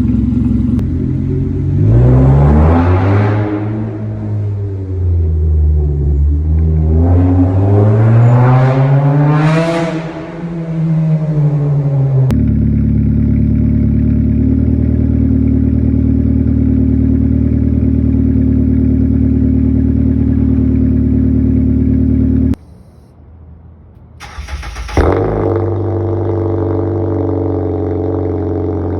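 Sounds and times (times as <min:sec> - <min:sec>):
car exhaust running steadily: 0:00.0 - 0:01.9, 0:12.3 - 0:23.0, 0:25.0 - 0:28.9.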